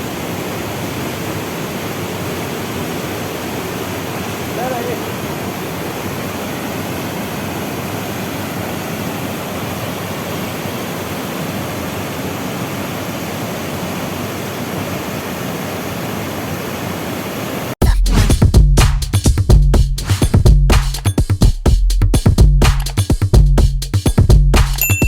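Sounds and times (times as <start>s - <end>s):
waterfall rushing: 0.0s - 17.8s
electronic music with drum machine: 17.8s - 25.0s.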